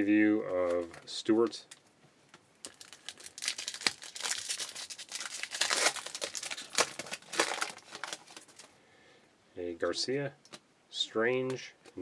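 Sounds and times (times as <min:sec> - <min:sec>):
card pack wrapper crinkling and tearing: 0:02.6 - 0:08.7.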